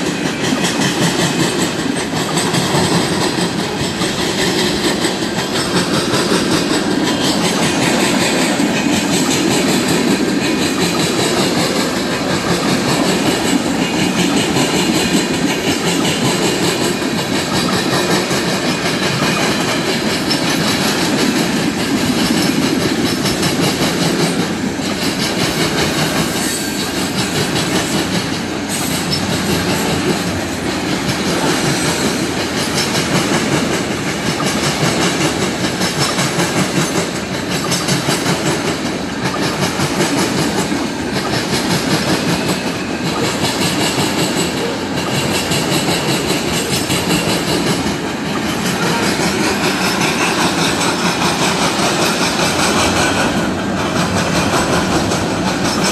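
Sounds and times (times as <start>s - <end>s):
steel wheels rumbling on rail: 0.0s - 55.9s
wheels clacking over rail joints: 0.0s - 55.9s.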